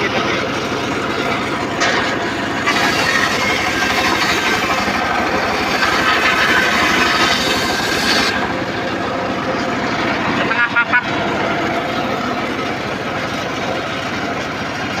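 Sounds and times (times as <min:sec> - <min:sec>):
saw blade cutting wood: 0:00.0 - 0:13.2
engine running: 0:00.0 - 0:15.0.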